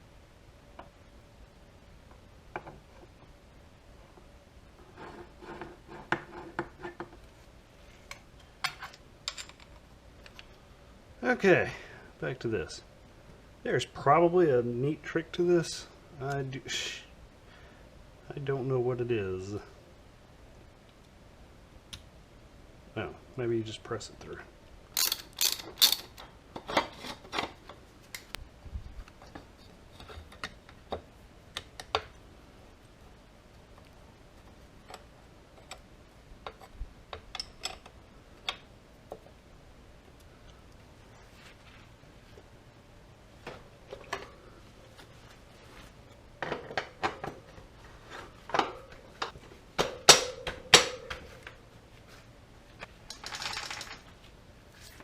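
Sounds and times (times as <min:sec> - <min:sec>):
metal parts clinking on a bench: 0:08.6 - 0:09.7, 0:25.0 - 0:26.2
metal parts clicking and tapping: 0:25.0 - 0:27.5, 0:34.8 - 0:38.6
sharp metal knocks: 0:49.8 - 0:51.4.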